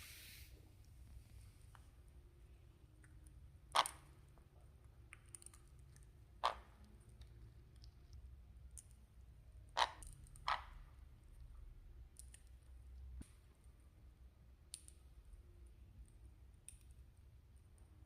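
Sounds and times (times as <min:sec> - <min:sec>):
beak cracking food: 0:05.1 - 0:08.0.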